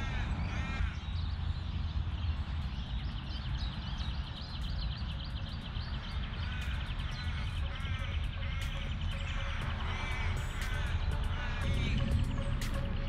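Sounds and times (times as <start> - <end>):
bird cawing: 0.0 - 1.3, 5.9 - 13.0
high chattering bird notes: 3.0 - 13.0.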